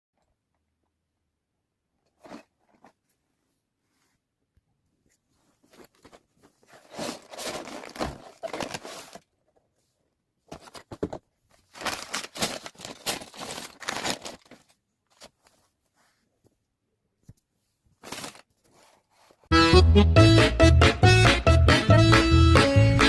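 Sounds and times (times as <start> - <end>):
plastic packaging crinkling: 5.6 - 9.4, 10.5 - 15.7.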